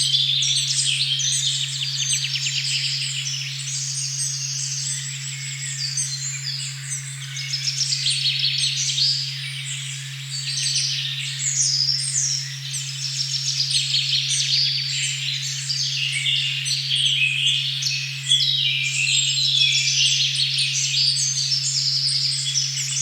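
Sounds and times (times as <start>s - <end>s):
low pure tone hum: 0.0s - 23.0s
songbirds singing: 0.0s - 23.0s.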